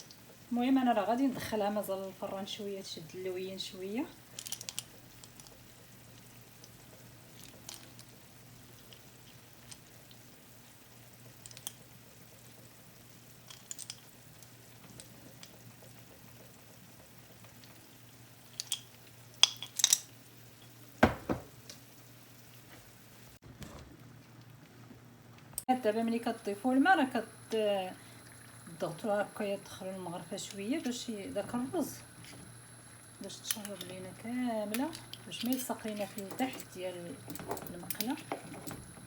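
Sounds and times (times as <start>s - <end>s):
frying hiss: 0.0s - 23.4s, 25.6s - 39.0s
cookware knocks and clatter: 21.0s - 21.6s.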